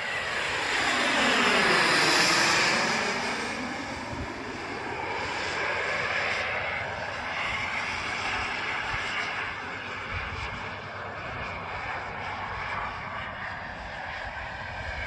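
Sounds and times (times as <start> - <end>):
model jet turbine rushing: 0.0 - 15.0.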